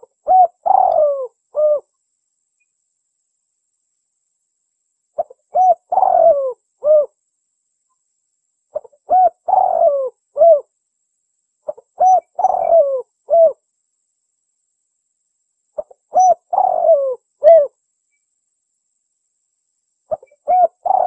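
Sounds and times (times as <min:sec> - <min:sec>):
dove cooing: 0:00.0 - 0:01.9, 0:05.2 - 0:07.2, 0:08.8 - 0:10.7, 0:11.7 - 0:13.6, 0:15.8 - 0:17.7, 0:20.1 - 0:21.0.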